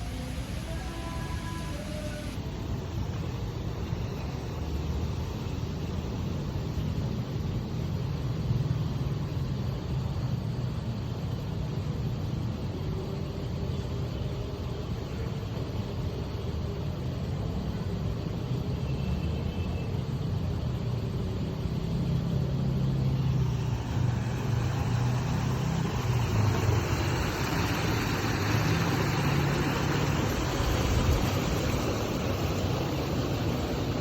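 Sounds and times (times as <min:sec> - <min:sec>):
road and traffic noise: 0:00.0 - 0:34.0
vehicle engine running: 0:20.5 - 0:34.0.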